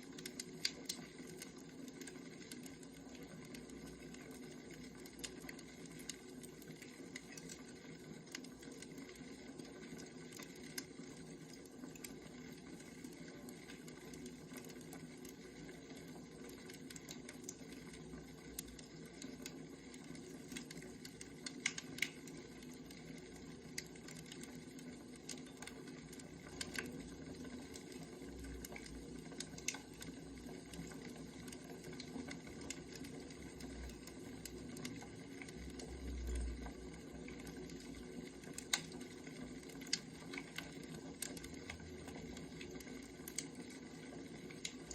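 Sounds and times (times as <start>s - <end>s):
wood fire crackling: 0.0s - 44.9s
fire pops and clicks: 0.1s - 2.8s, 18.4s - 23.0s, 25.2s - 27.0s, 27.7s - 30.1s, 38.4s - 43.6s, 44.5s - 44.9s.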